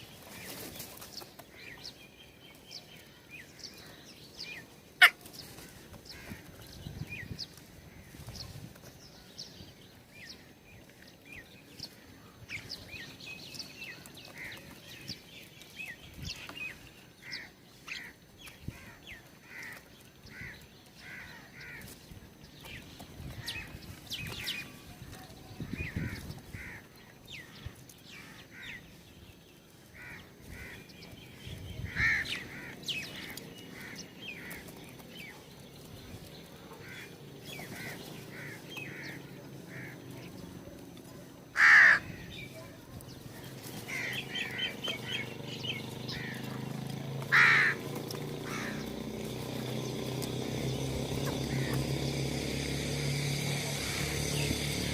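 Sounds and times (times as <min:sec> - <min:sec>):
birds calling: 0:00.0 - 0:54.9.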